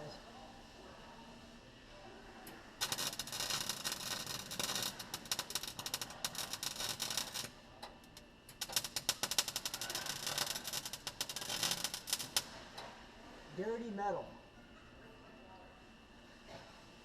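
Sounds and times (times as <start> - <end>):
welding arc crackling: 2.8 - 7.5, 8.1 - 12.6.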